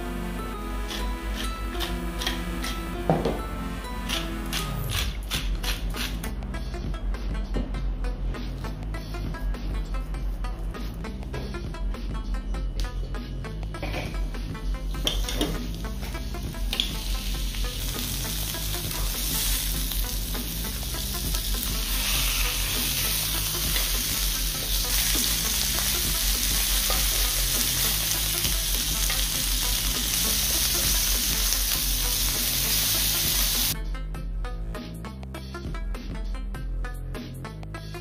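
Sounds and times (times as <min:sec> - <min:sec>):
fish sizzling in oil: 0:16.8 - 0:33.8.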